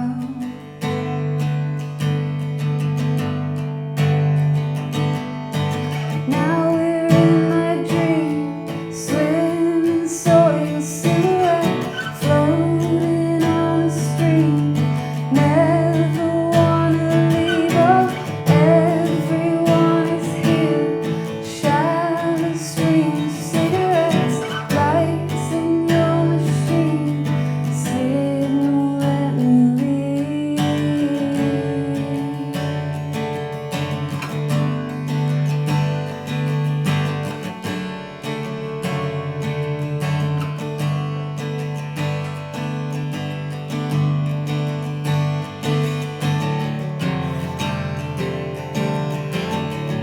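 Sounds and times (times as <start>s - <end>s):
woman singing: 0.0s - 1.2s, 5.7s - 34.0s
strummed acoustic guitar: 0.0s - 50.0s.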